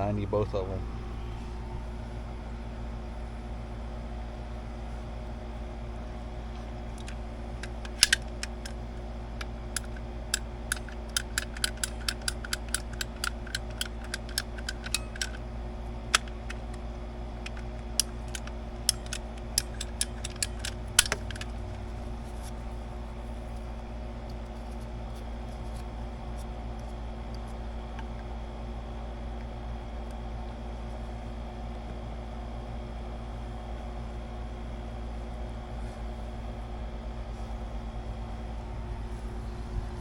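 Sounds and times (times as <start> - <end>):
steady low hum: 0.0 - 40.0
ratcheting pipe cutter clicking: 6.9 - 15.4, 16.0 - 16.8, 17.4 - 22.5.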